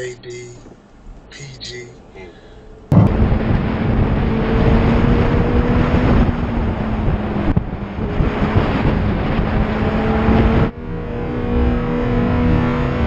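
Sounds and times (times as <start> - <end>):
steady low drone: 1.3 - 8.4
moving vehicle rushing: 2.0 - 13.0
wind buffeting microphone: 2.9 - 13.0.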